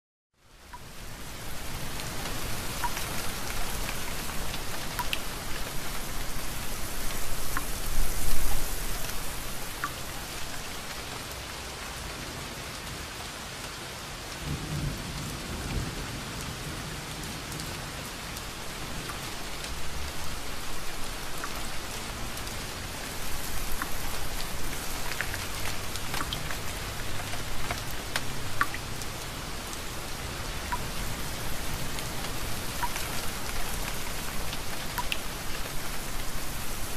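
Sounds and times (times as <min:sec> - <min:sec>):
steady rain: 0:00.4 - 0:36.9
water drips: 0:00.7 - 0:11.1, 0:19.0 - 0:29.8, 0:30.6 - 0:36.7.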